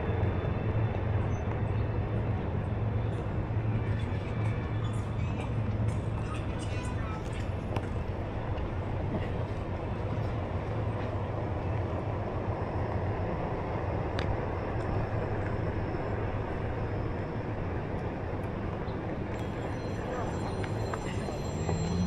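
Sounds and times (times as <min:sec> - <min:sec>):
electric board tyre rumbling on pavement: 0:05.5 - 0:22.0.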